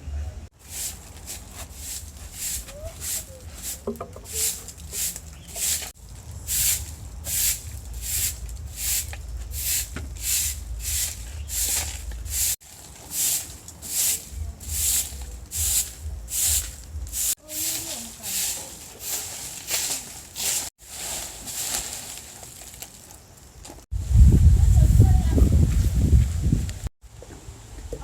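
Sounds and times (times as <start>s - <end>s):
rhythmic hissing scraping strokes: 0.6s - 22.3s
low rumble: 6.0s - 12.6s, 14.3s - 17.4s.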